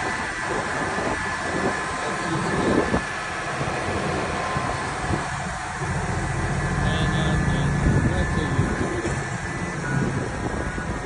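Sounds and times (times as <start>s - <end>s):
heavy vehicle engine running: 0.0s - 11.0s.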